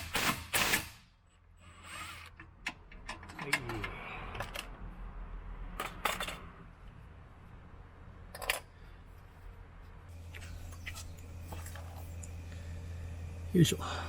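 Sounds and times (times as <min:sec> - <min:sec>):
steady low hum: 0:06.5 - 0:14.0.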